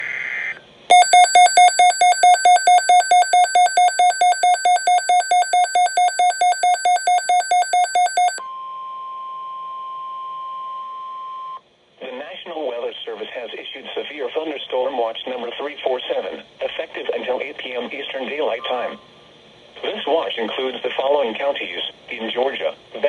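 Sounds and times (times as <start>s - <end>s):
steady high alarm tone: 0.9s - 8.4s.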